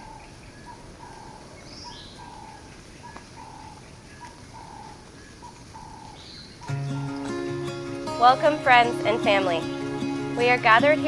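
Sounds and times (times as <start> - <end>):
high bird chirps: 0.0 - 7.2
birds calling: 0.0 - 11.0
faint outdoor hiss: 0.0 - 11.0.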